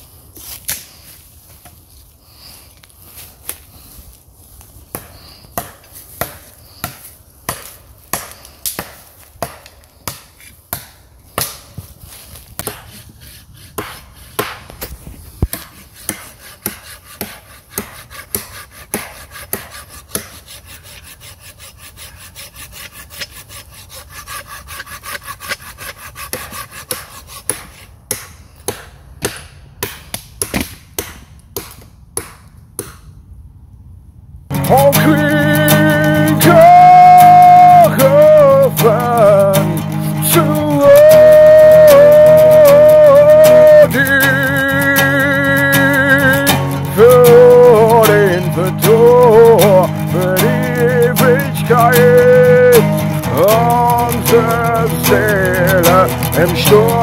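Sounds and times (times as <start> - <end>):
sharp wooden cracks and scrapes: 0.4 - 28.8.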